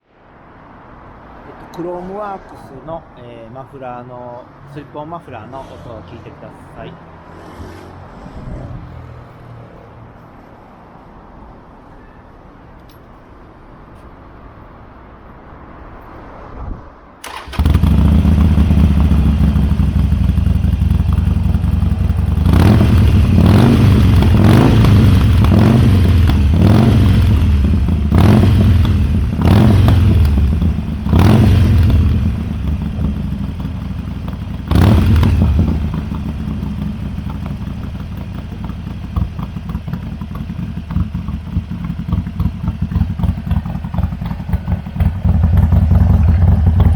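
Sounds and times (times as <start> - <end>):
motorcycle engine revving: 17.2 - 46.9
motorcycle engine starting: 17.2 - 46.9.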